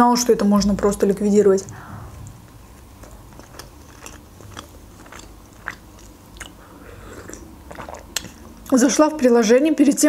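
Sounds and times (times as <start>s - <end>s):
wet mouth clicks: 1.6s - 8.7s
woman chewing: 1.6s - 8.8s.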